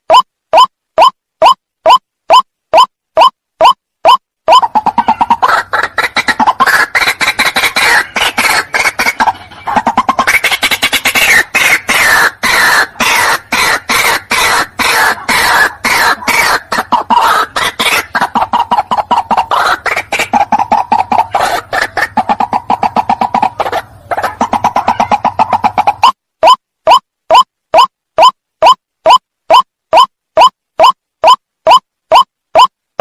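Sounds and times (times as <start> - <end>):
waterhen harsh clucking calls: 0.1 - 32.7.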